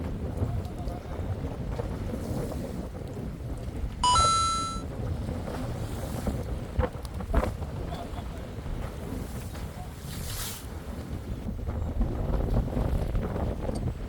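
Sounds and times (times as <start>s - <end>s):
wind on microphone: 0.0s - 14.0s
short electronic beep rising: 4.0s - 4.8s.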